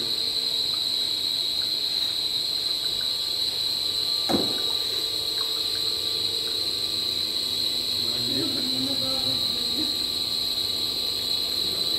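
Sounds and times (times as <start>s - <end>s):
short knock: 4.3s - 4.7s.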